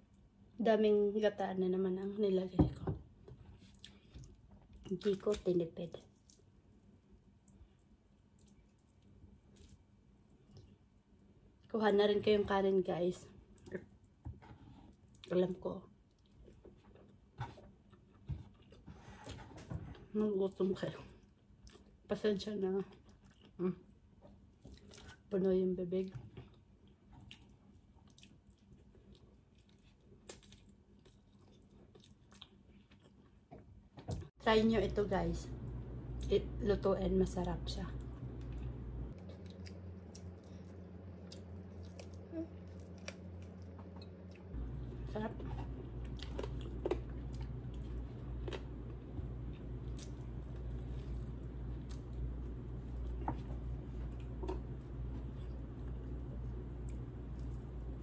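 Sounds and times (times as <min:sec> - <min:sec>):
chewing with wet mouth smacks: 0:07.2 - 0:10.8, 0:24.6 - 0:25.3, 0:26.4 - 0:33.4, 0:38.4 - 0:44.6, 0:46.0 - 0:58.0
steady low hum: 0:34.2 - 0:58.0.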